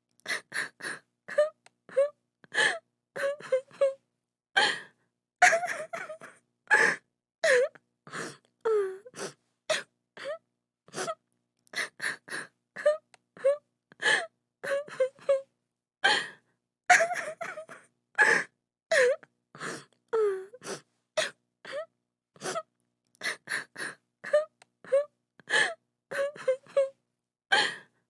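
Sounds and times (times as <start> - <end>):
woman sobbing: 0.4 - 4.0, 5.4 - 7.7, 16.9 - 19.2, 23.3 - 26.9.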